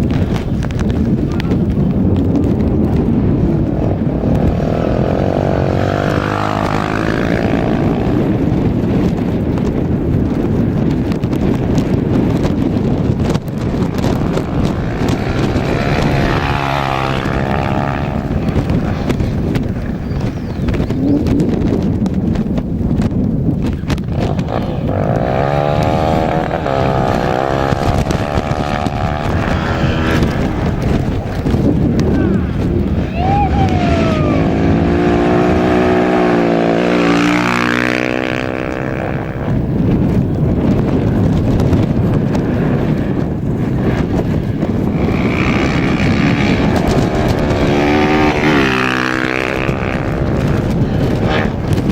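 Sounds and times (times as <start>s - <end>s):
steady low rumbling: 0.0s - 51.9s
rally car engine passing: 14.0s - 19.4s, 24.2s - 39.6s.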